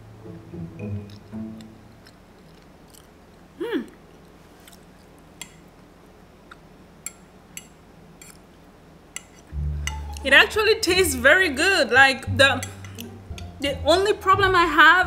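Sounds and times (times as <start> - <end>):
person chewing food: 0.9 - 5.7
person humming mm: 3.6 - 4.0.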